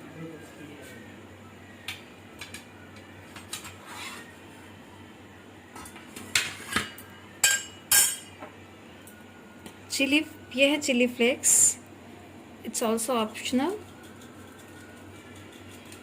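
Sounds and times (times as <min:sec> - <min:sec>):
dishes and utensils clinking: 0:05.8 - 0:08.4.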